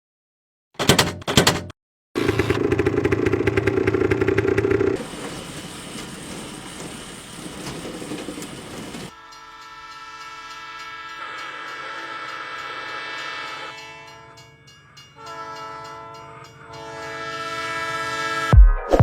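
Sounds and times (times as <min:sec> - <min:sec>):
motor vehicle engine running: 0:02.2 - 0:09.1
horn-like tone: 0:15.2 - 0:18.5.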